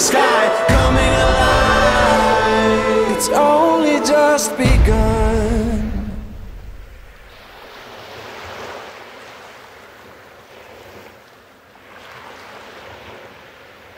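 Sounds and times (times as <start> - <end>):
waterfall rushing and crashing: 0.0 - 9.0.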